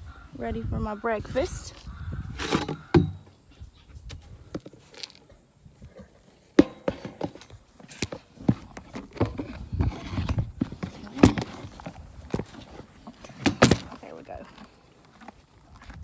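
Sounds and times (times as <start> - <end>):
horse feeding knocks and clatters: 1.6 - 3.4, 5.8 - 16.0.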